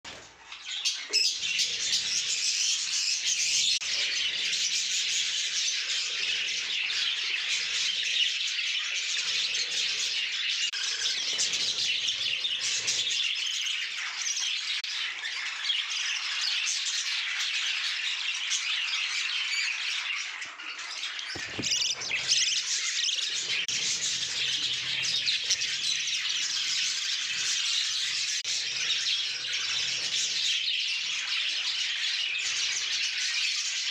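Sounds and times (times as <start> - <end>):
budgerigars chattering: 21.3 - 33.1.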